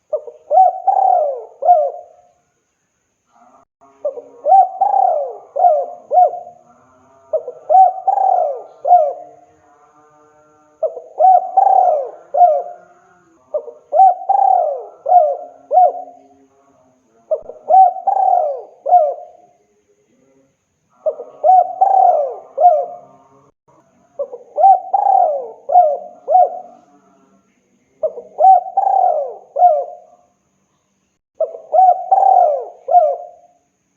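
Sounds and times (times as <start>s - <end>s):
dove cooing: 0.0s - 2.2s, 4.0s - 6.7s, 7.3s - 9.4s, 10.8s - 16.2s, 17.3s - 19.5s, 21.0s - 23.2s, 24.2s - 26.8s, 28.0s - 30.2s, 31.4s - 33.6s.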